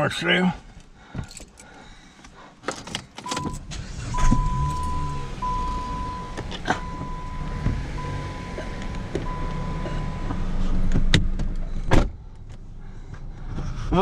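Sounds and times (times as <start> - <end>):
car engine starting and idling: 2.6 - 14.0
electronic warning tone: 3.3 - 10.7.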